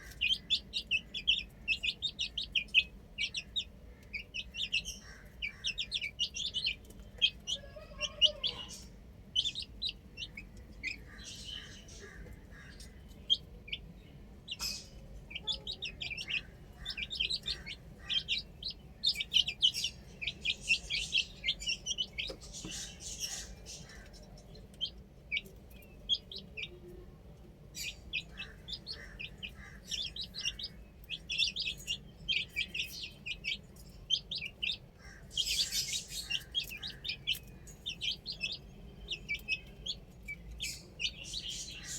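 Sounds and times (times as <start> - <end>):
baby chicks peeping: 0.0 - 41.9.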